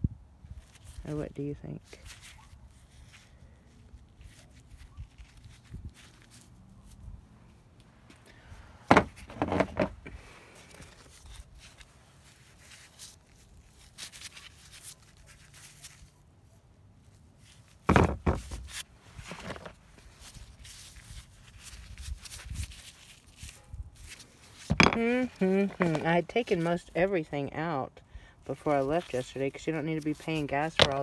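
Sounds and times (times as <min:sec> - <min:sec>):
knocks and thumps: 0:08.9 - 0:10.0, 0:17.9 - 0:18.5, 0:24.7 - 0:25.0.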